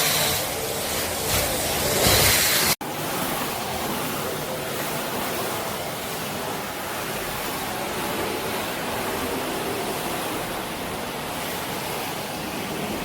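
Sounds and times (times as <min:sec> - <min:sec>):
vacuum cleaner running: 0:00.0 - 0:04.1.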